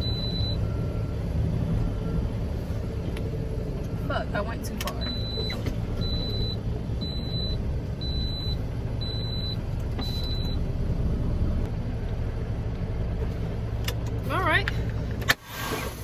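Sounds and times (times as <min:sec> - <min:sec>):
truck reverse alarm beeping: 0:00.0 - 0:02.4, 0:05.0 - 0:10.7
diesel engine rumble: 0:00.0 - 0:16.0.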